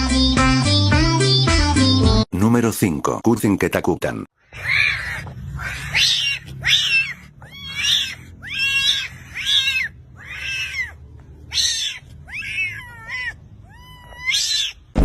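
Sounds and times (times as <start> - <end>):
cat meowing: 4.6 - 15.0.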